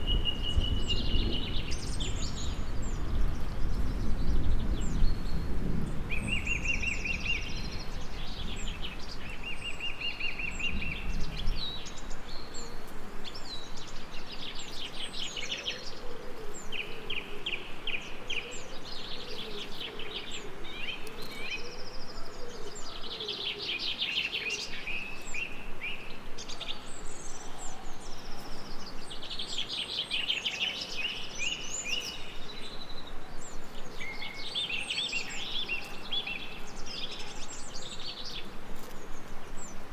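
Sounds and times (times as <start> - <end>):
distant thunder rumble: 0.0 - 9.1
songbirds singing: 0.0 - 39.9.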